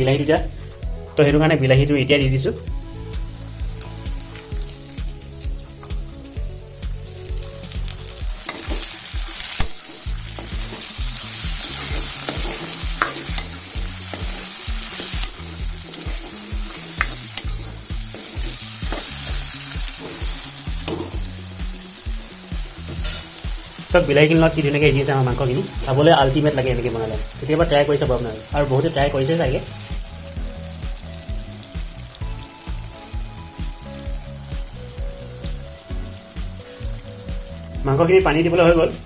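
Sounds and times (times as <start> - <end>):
food sizzling in a pan: 2.6 - 39.0
steel ladle scraping a pan: 8.4 - 19.3, 22.9 - 23.4.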